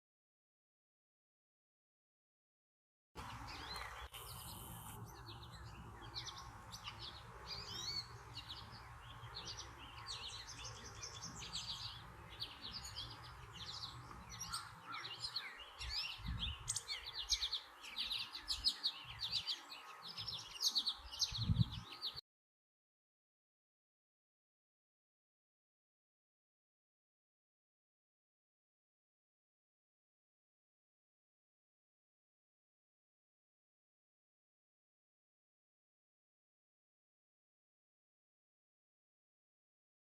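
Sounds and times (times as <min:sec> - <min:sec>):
small birds chirping: 0:03.2 - 0:22.2.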